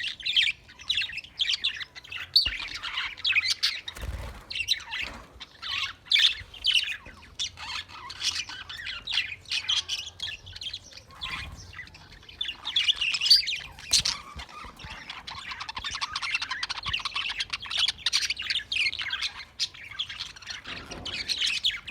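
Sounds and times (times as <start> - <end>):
budgerigars chirping and warbling: 0.0 - 21.9.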